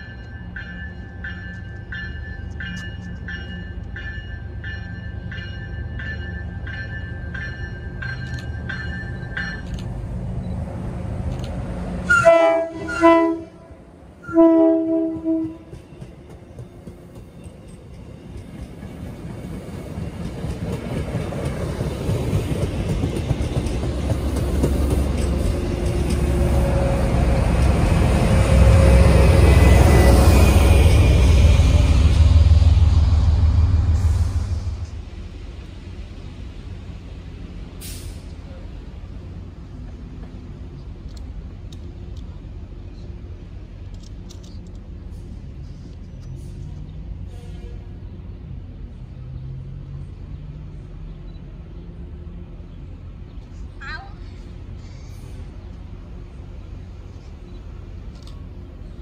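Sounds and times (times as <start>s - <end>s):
train bell ringing: 0.0s - 10.6s
train rumbling past: 0.0s - 59.0s
train horn blasts: 12.1s - 15.8s, 47.3s - 48.0s.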